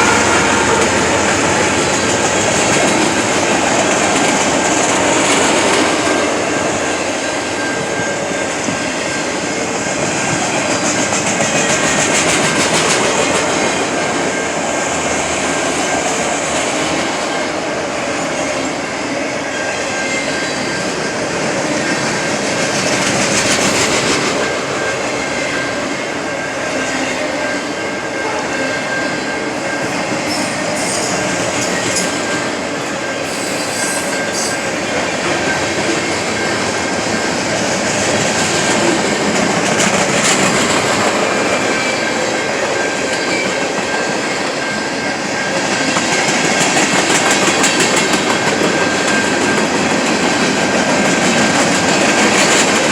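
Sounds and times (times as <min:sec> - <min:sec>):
train wheels rumbling on rail: 0:00.0 - 0:52.9
high-pitched wheel squeal: 0:33.1 - 0:34.8.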